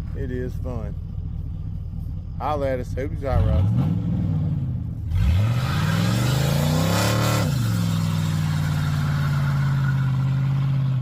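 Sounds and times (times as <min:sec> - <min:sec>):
car engine revving: 0:02.8 - 0:11.0.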